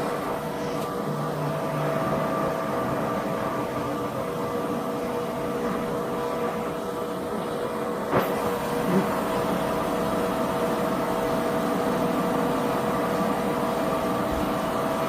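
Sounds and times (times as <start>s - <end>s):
lathe humming: 0.0s - 15.0s.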